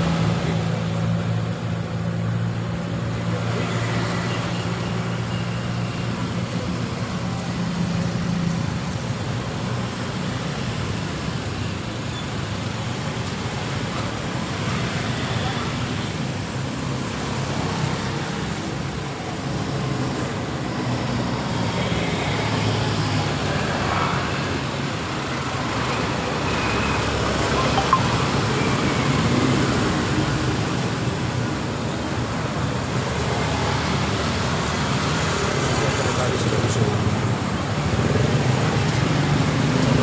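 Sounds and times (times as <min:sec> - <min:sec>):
road traffic passing: 0:00.0 - 0:40.0.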